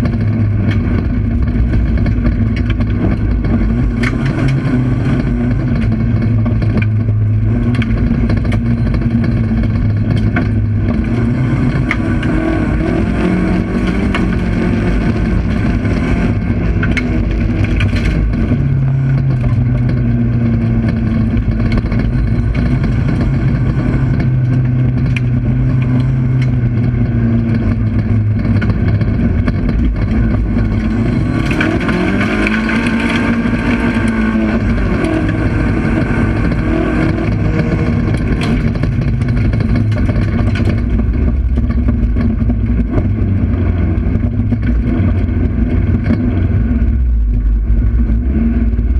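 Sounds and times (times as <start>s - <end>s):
knocks and rattles: 0.0s - 48.9s
race car engine revving: 0.0s - 48.9s.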